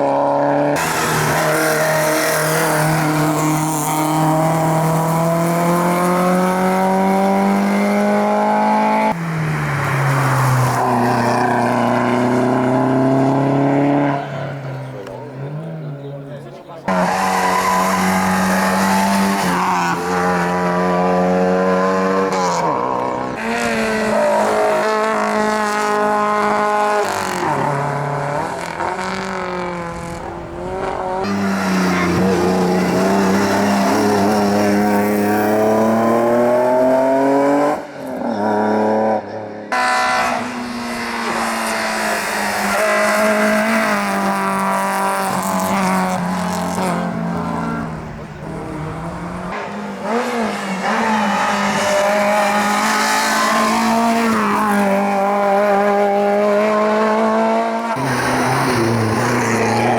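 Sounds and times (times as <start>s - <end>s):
racing car engines revving: 0.0s - 59.9s
tyre squeal: 16.9s - 20.0s, 31.2s - 34.4s, 58.0s - 59.9s.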